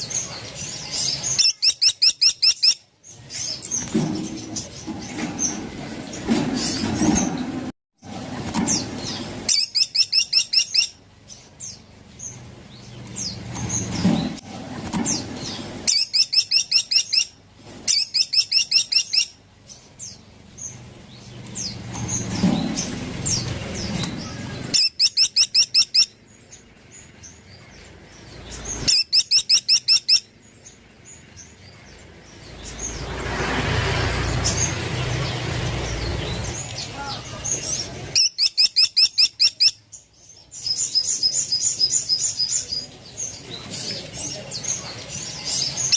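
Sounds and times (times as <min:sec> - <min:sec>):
rushing noise: 0:32.2 - 0:37.1.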